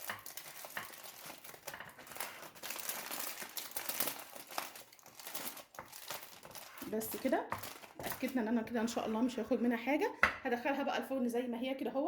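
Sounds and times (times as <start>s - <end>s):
aluminium foil crinkling: 0.0s - 8.5s.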